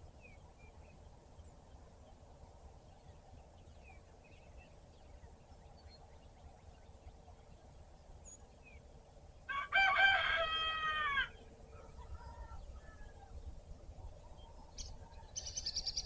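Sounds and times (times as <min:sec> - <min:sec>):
rooster crowing: 0:09.5 - 0:13.4
faint bird chirps: 0:11.4 - 0:16.0.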